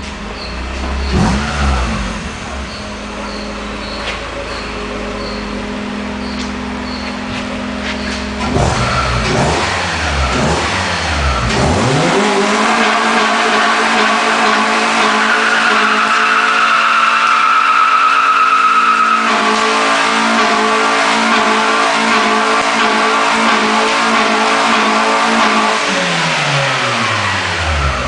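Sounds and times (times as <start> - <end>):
car engine at high revs: 0.0 - 28.0
tyre squeal: 2.5 - 5.6, 6.2 - 9.4, 12.8 - 19.7.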